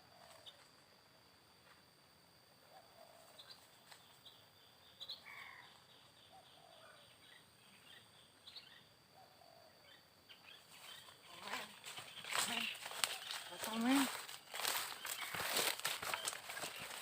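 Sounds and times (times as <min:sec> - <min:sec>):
small birds chirping: 0:02.7 - 0:17.0.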